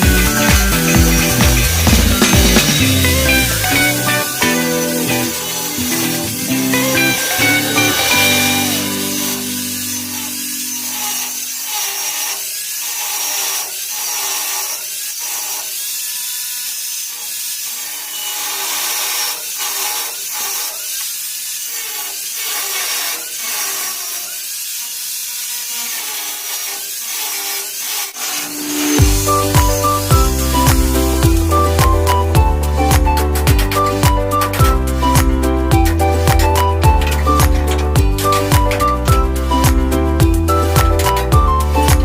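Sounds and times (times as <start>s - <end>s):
background music: 0.0s - 11.2s, 28.6s - 42.0s
rhythmic sawing strokes: 0.0s - 42.0s.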